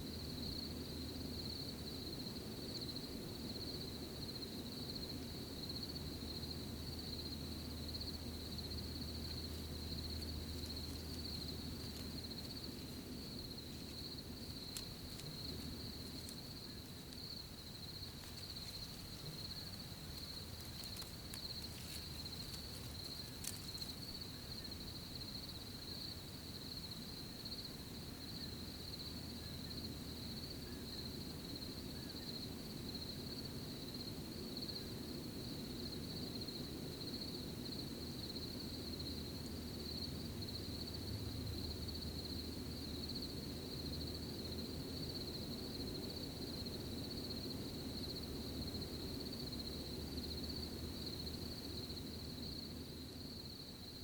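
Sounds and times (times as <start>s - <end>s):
crickets chirping: 0.0s - 54.0s
soft low rustling: 9.2s - 24.3s
faint clicks: 18.1s - 24.0s.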